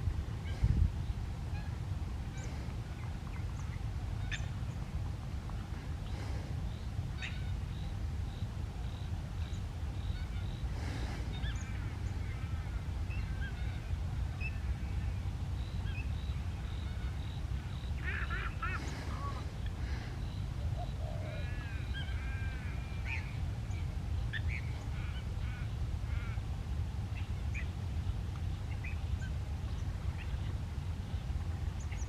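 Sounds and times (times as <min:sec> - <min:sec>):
steady low rumble: 0:00.0 - 0:32.0
birds chirping: 0:15.6 - 0:26.3
loud bird call: 0:16.7 - 0:23.3.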